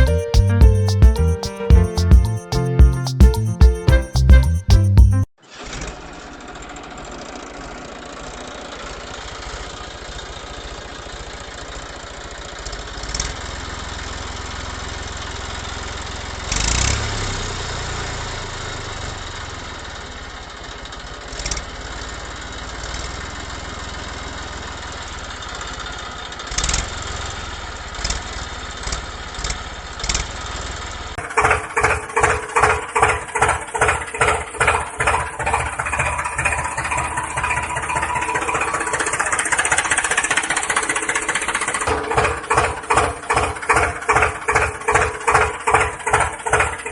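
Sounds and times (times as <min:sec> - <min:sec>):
pulsing beat: 0:00.0 - 0:05.3, 0:34.3 - 0:44.8
knocks: 0:41.9 - 0:46.8.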